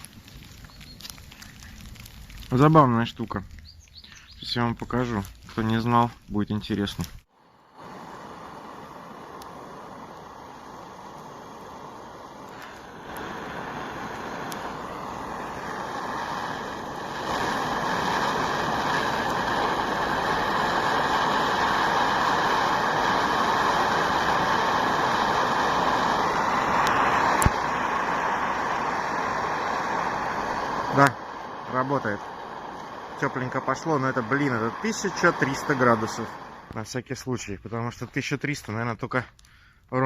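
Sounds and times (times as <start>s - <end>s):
gas torch flame hissing: 6.9s - 37.0s.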